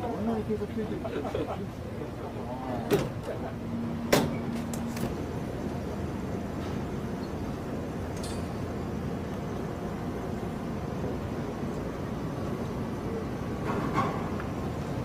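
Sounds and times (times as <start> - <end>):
faint clink: 8.2 - 8.6.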